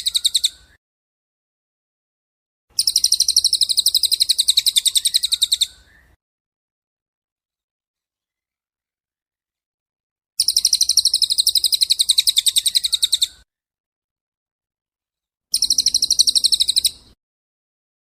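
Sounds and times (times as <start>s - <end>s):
songbird trilling: 0.0s - 0.8s, 2.8s - 6.2s, 10.4s - 13.4s, 15.5s - 17.2s.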